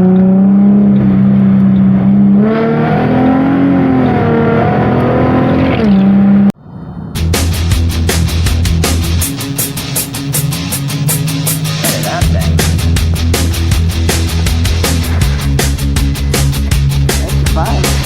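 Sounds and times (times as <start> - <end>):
engine revving: 0.0 - 6.6, 7.2 - 18.0
rock music with drums: 7.2 - 18.0.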